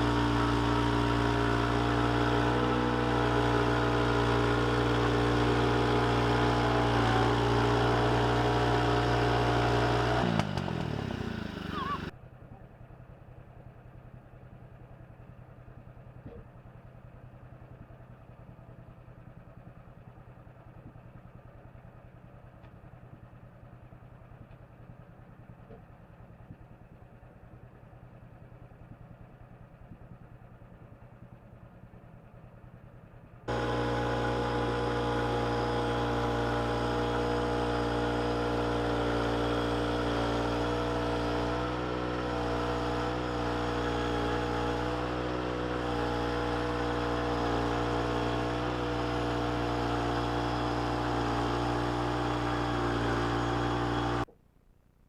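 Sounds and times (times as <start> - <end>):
loud engine drone: 0.0 - 12.1, 33.5 - 54.3
engine running low: 0.0 - 32.0, 33.2 - 54.3.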